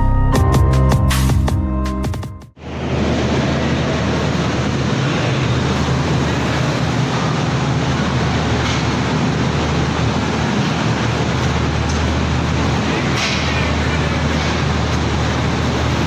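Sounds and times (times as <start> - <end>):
low drone: 2.6 - 16.0
train rumbling: 2.6 - 16.0.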